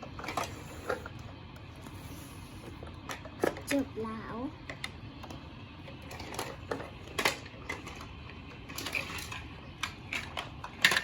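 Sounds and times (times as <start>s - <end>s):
plastic toy clicks and knocks: 8.7s - 11.0s.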